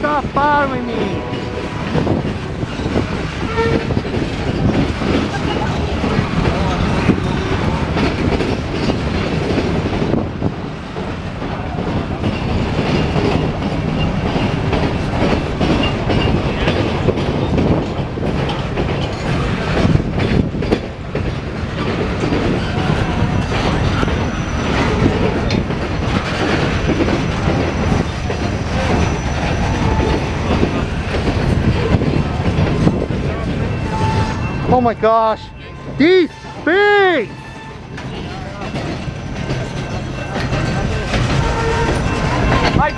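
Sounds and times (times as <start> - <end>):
freight train wheels clacking: 0.0 - 42.9.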